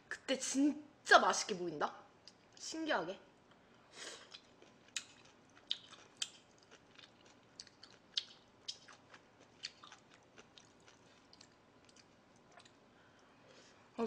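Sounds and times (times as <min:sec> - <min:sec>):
person chewing food: 0:04.2 - 0:13.3.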